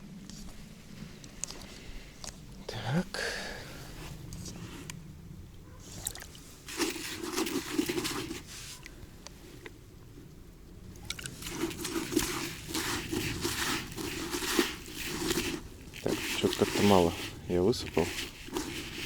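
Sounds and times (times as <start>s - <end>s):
groundbait pouring and rustling: 5.8s - 9.0s, 10.9s - 19.0s.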